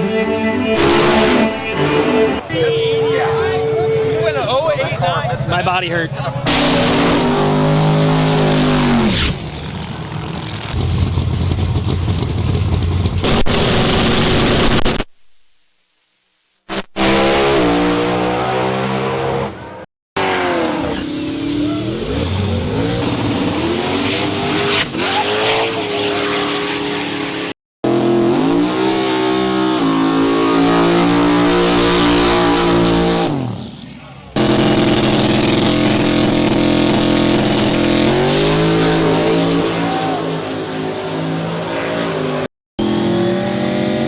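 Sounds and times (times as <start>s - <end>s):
car engines revving: 0.0s - 14.8s, 16.7s - 44.0s.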